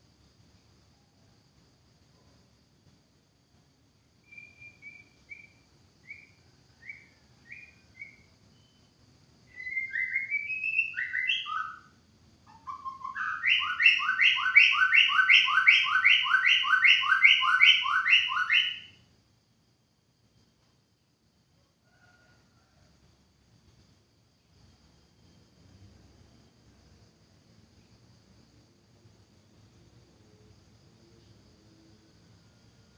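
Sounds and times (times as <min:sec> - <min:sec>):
bird singing: 0:04.2 - 0:19.0.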